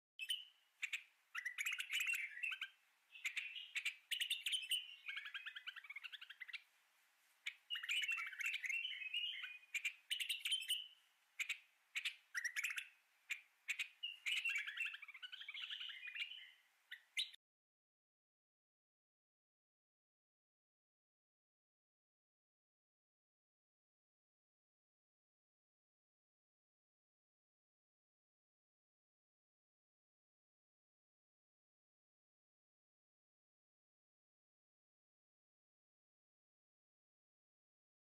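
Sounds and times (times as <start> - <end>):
bird chirps and trills: 0.2 - 6.7, 7.4 - 17.4.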